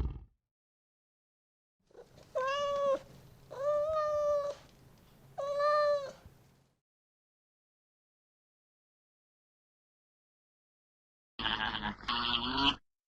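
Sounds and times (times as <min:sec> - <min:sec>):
cat meowing: 0:02.0 - 0:04.6, 0:05.4 - 0:06.2.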